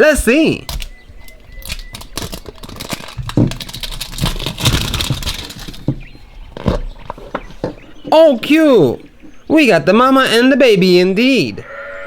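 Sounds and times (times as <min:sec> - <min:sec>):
packaging crinkling and rustling: 0:00.0 - 0:08.1.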